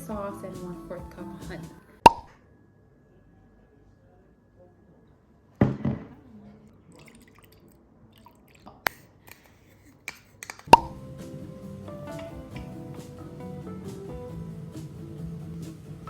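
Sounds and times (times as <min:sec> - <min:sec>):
liquid splashing: 0:06.8 - 0:09.2.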